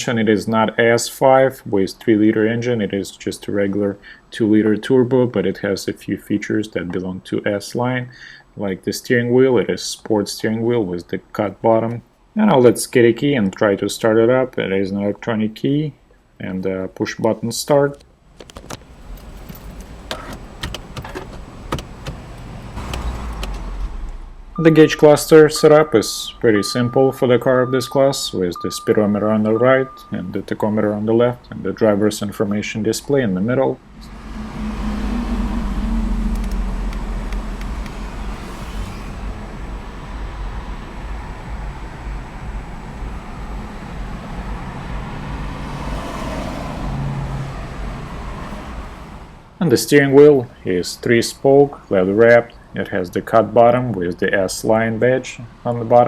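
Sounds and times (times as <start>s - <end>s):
keys jangling: 19.1s - 20.4s
low engine hum: 33.8s - 49.4s.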